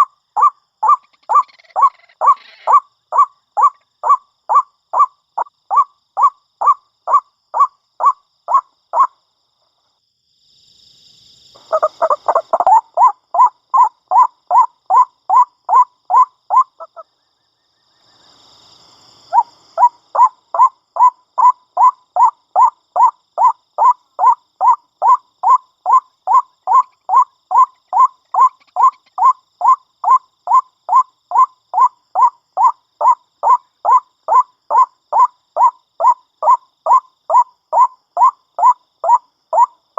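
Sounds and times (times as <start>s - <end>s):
waterhen croaking call: 0.0s - 5.1s, 11.6s - 17.0s, 19.3s - 39.7s.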